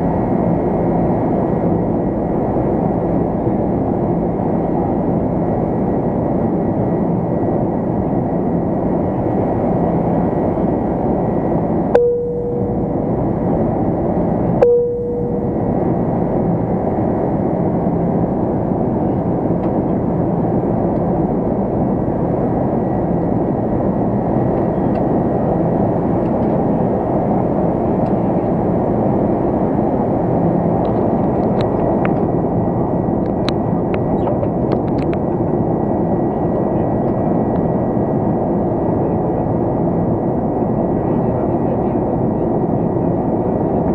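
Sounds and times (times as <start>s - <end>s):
airliner cabin noise: 0.0s - 43.9s
faint steady whine: 0.0s - 43.9s.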